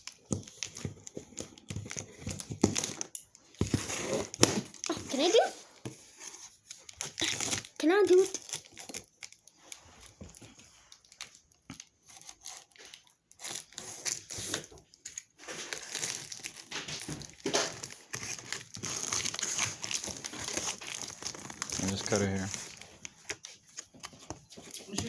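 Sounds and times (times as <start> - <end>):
packing tape tearing: 0.0 - 5.4, 6.5 - 9.8, 10.9 - 25.0
cardboard scraping and tearing: 3.6 - 7.7, 15.4 - 23.5.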